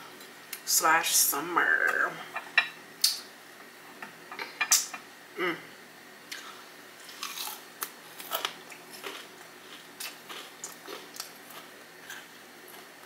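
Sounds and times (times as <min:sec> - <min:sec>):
crunchy chewing of fried food: 0:06.3 - 0:13.0.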